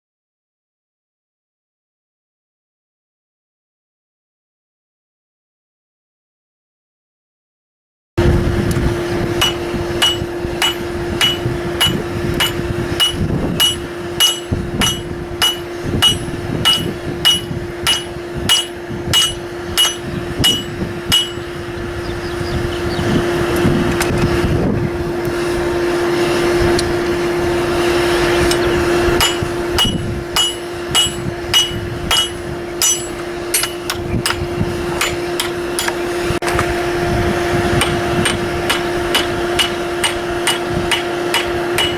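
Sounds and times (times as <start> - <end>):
steady hum: 8.2 - 36.4
hammer ringing on anvil: 9.4 - 21.6, 29.2 - 36.1, 38.3 - 41.9.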